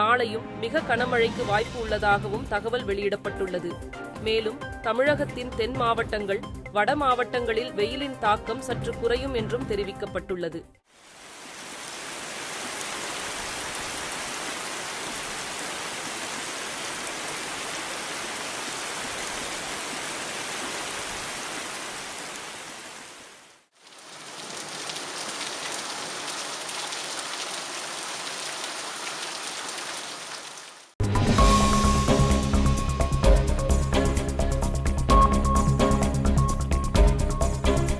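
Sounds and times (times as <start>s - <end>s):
steady rain falling: 10.9s - 31.0s.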